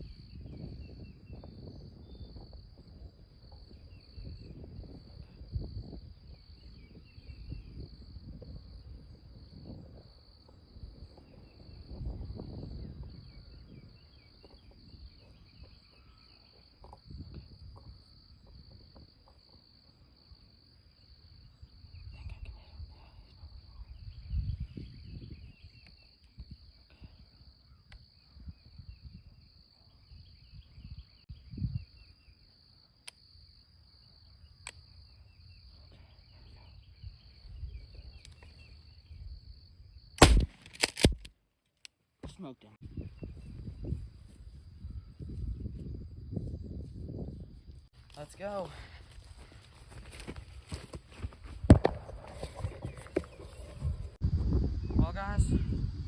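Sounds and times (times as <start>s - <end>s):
insects trilling: 0.0s - 40.5s, 42.9s - 55.9s
small birds chirping: 3.5s - 18.7s, 21.0s - 40.2s, 48.2s - 54.2s.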